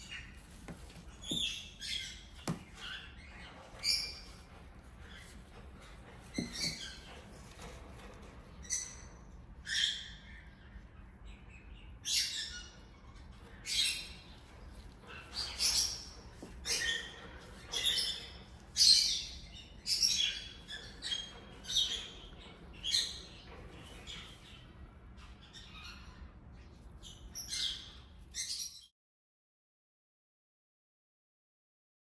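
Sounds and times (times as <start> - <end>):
bird chirping: 0.0 - 28.9.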